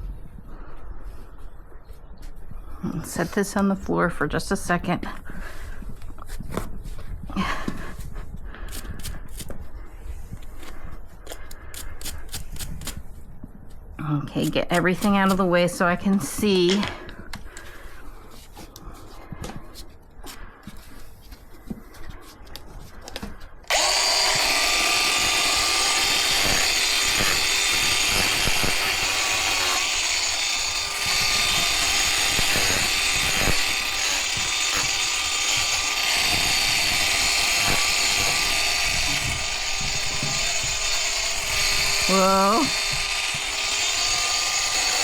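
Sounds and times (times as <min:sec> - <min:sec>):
angle grinder grinding: 0:23.7 - 0:45.0.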